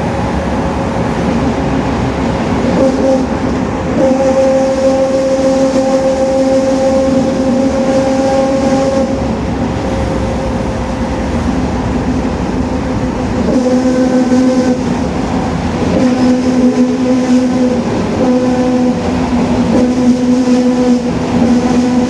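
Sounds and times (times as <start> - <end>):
road and engine noise: 0.0 - 4.5, 9.0 - 22.0.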